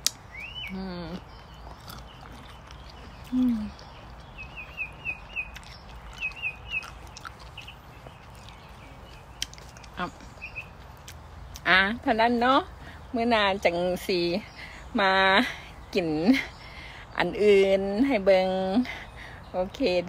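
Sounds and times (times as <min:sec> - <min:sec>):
small birds chirping: 0:00.0 - 0:20.0
person humming low: 0:03.3 - 0:03.8.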